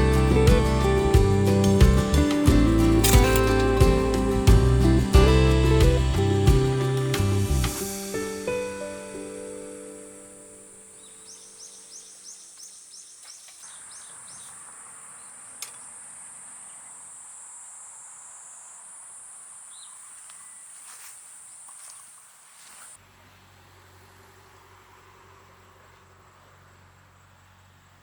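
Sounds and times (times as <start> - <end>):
short high chirps: 0.0 - 10.1
insects trilling: 0.0 - 23.0
sharp click: 3.0 - 4.3.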